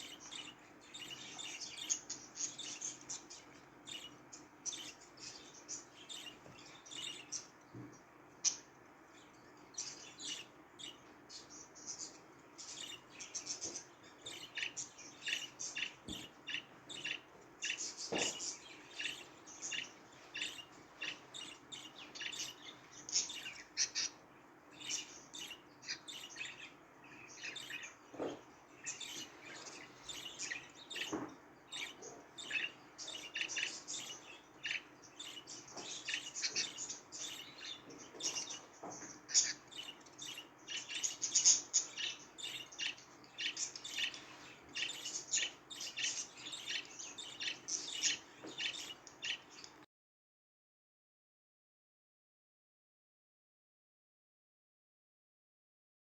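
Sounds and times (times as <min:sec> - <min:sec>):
budgerigars chirping and warbling: 0:00.0 - 0:49.8.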